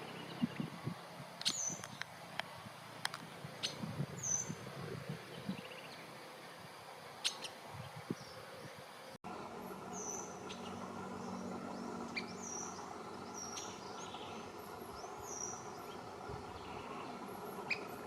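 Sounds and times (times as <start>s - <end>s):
low background rumble: 9.3s - 18.0s
high bird calls: 9.9s - 18.0s.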